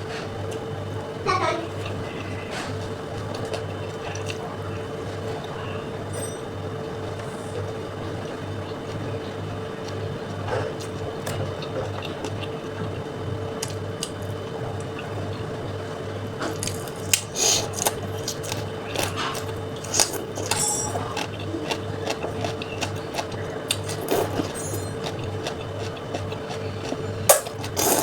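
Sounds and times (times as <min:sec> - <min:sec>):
steady low hum: 0:00.0 - 0:28.0
wet chewing: 0:16.4 - 0:28.0.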